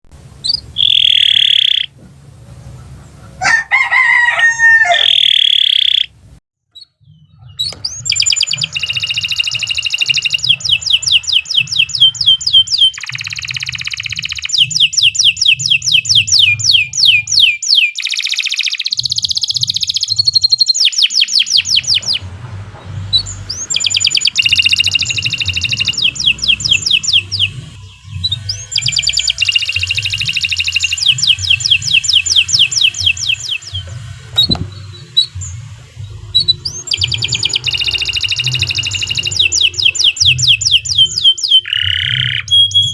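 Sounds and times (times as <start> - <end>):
lower falling bird call: 0.4 - 1.9
canary singing trills: 0.4 - 22.2, 23.2 - 42.9
high whistled notes: 0.5 - 1.9, 36.4 - 41.6.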